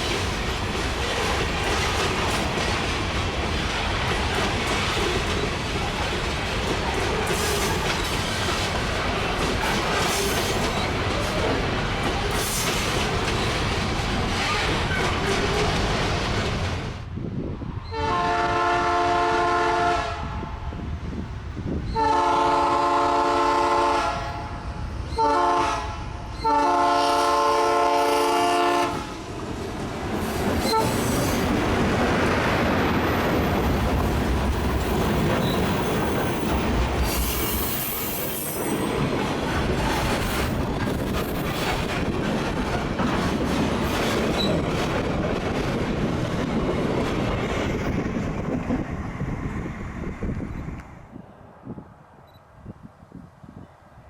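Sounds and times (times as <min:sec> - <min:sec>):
train rumble and wheel clatter: 0:00.0 - 0:54.0
locomotive horn blasts: 0:17.9 - 0:20.5, 0:22.0 - 0:24.5, 0:25.2 - 0:29.1.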